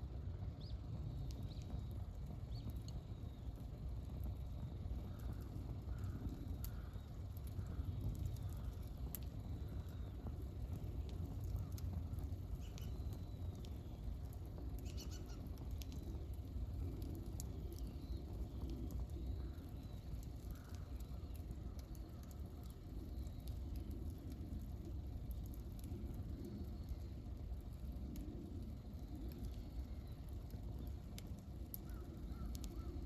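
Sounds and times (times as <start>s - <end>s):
campfire crackling and popping: 0.0s - 33.0s
faint bird chirps: 12.6s - 14.0s, 14.7s - 16.0s.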